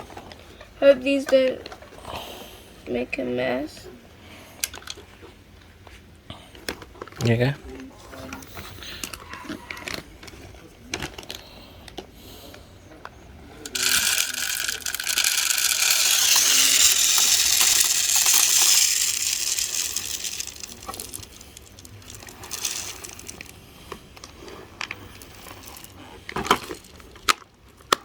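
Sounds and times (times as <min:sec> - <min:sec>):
bird seed pouring: 0:13.7 - 0:23.6, 0:24.2 - 0:27.2
seed clicks and taps: 0:13.7 - 0:23.6.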